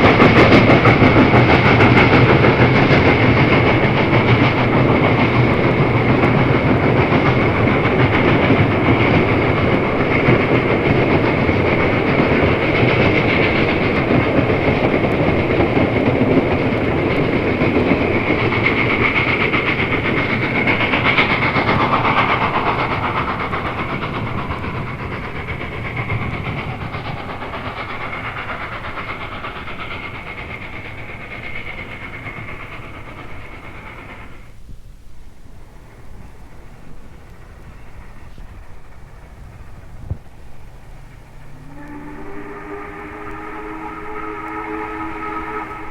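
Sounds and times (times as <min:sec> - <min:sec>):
steam train running past: 0:00.0 - 0:45.9.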